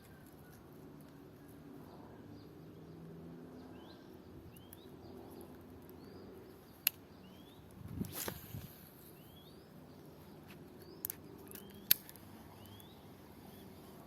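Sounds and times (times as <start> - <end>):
bird chirping: 0.0 - 14.0
sharp click: 11.0 - 12.9.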